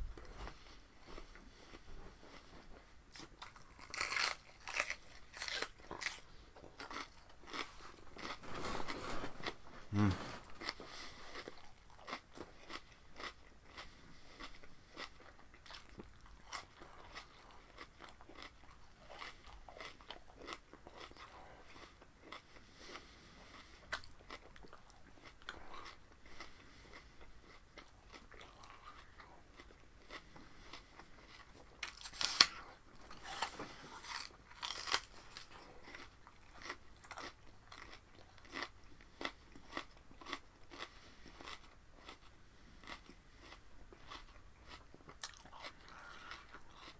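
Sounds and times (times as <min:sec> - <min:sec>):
person biting raw vegetables: 0:31.8 - 0:35.5.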